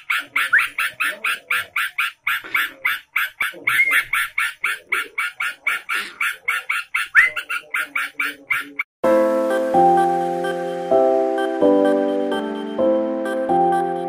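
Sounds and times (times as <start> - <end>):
bird calling with harsh notes: 0.0 - 8.9.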